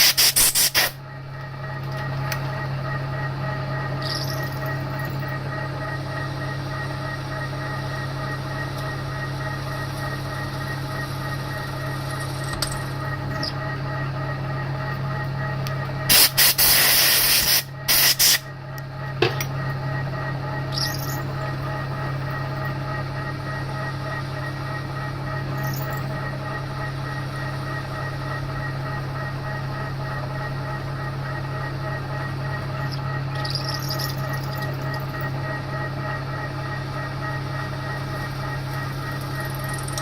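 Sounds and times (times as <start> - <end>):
milling machine running: 20.3 - 40.0.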